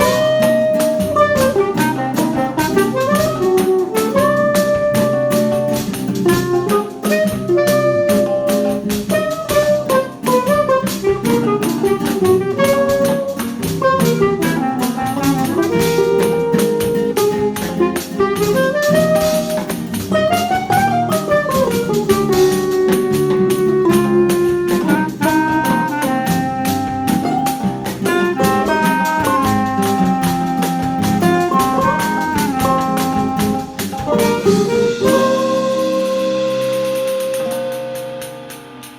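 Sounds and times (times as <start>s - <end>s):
instrumental ensemble music: 0.0s - 38.9s.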